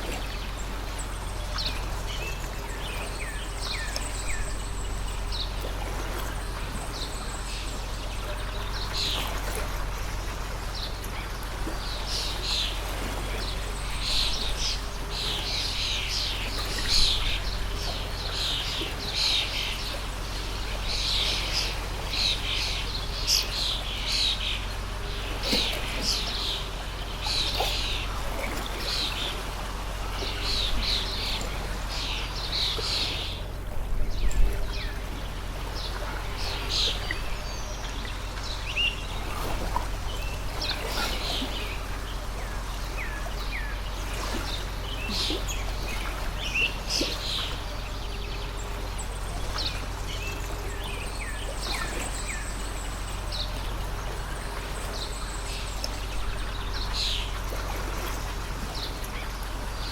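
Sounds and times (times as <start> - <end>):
small birds chirping: 0.0 - 29.4, 34.1 - 59.9
stream flowing: 0.0 - 59.9.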